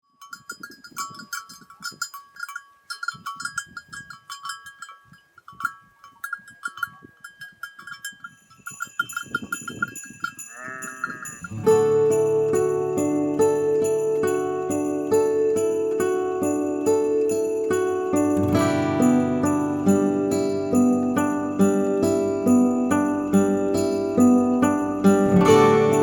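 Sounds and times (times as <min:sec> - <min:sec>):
livestock bells clinking: 0:00.1 - 0:26.0
animal bleat: 0:10.5 - 0:11.4
background music: 0:11.6 - 0:26.0.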